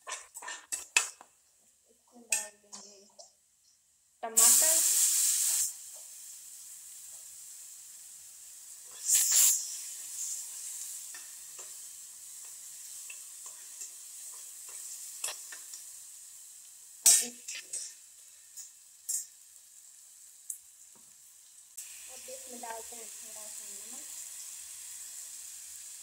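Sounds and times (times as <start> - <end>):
metal spoon scraping a pan: 0.0 - 1.2, 8.9 - 15.8, 17.0 - 19.3
tomatoes sizzling in oil: 2.1 - 26.0.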